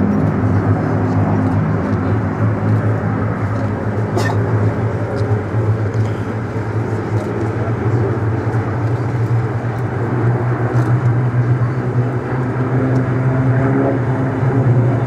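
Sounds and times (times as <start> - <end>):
piston aircraft engine drone: 0.0 - 15.0.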